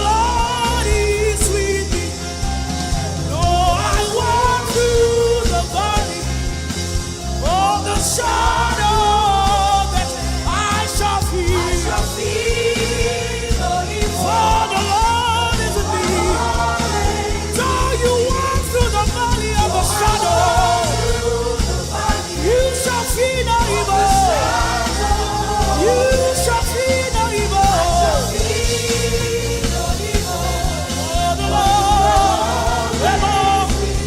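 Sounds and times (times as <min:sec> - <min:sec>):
band with bass and drums: 0:00.0 - 0:34.0
person singing: 0:07.4 - 0:34.0.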